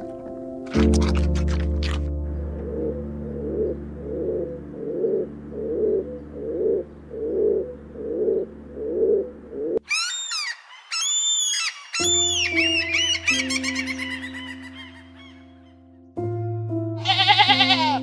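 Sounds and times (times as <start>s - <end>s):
gull high calls: 2.7s - 15.8s.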